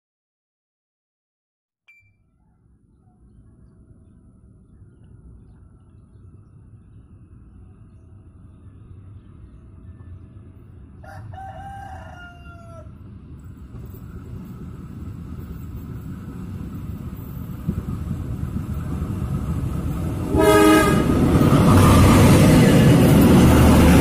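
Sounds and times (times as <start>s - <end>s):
diesel locomotive rumble: 3.1s - 24.0s
rooster crowing: 11.0s - 13.0s
locomotive horn: 20.3s - 21.2s.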